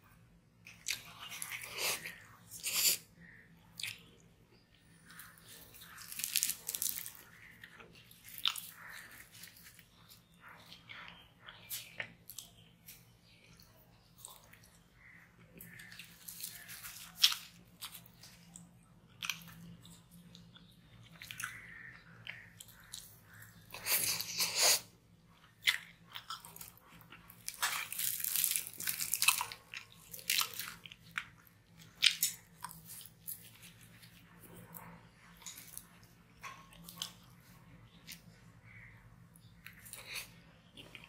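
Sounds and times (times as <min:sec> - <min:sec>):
crunchy chewing: 0:00.6 - 0:38.9, 0:39.5 - 0:41.0
tearing flatbread: 0:05.0 - 0:10.2, 0:15.6 - 0:18.6, 0:25.9 - 0:36.0.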